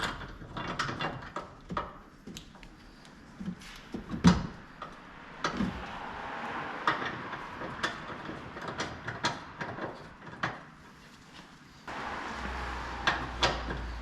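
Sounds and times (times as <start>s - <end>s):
hiss: 11.9s - 14.0s.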